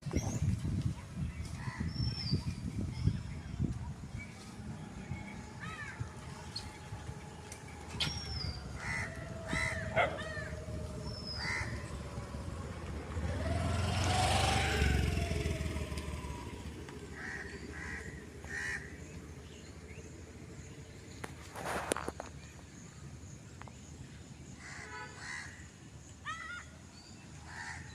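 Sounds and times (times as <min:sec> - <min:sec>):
vehicle passing by: 0:03.6 - 0:21.8
harsh animal or bird calls: 0:05.0 - 0:12.6, 0:17.1 - 0:19.1.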